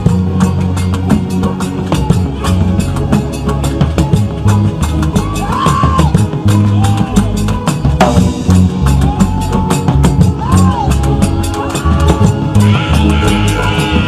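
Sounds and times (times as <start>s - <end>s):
drum-kit beat: 0.0s - 14.0s
pulsing bass line: 0.0s - 14.0s
sliding lead melody: 0.0s - 14.0s.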